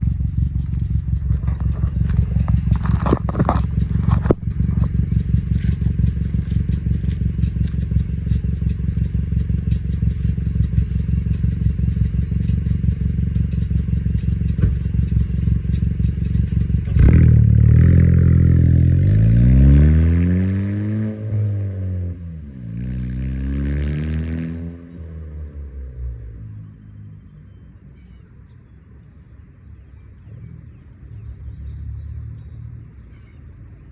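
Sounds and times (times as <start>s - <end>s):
car exhaust idling and revving: 0.0s - 26.7s.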